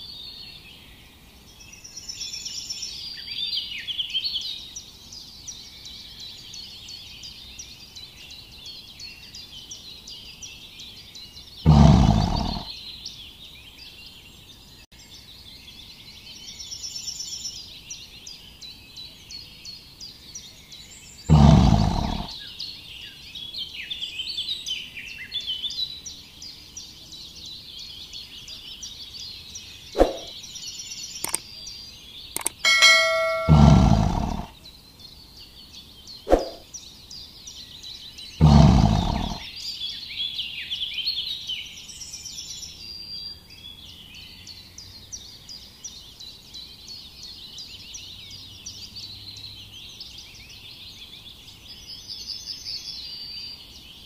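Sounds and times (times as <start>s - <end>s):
birds chirping and singing: 8.3s - 13.3s, 16.6s - 54.0s
loud deep sounds: 32.7s - 34.5s.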